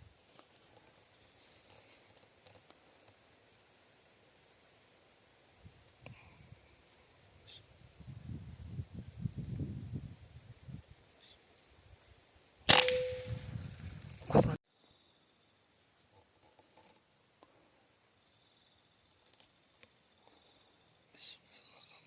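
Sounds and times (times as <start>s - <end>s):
faint high insect drone: 0.0s - 13.1s, 14.7s - 22.0s
air rifle cracks: 12.7s - 13.6s.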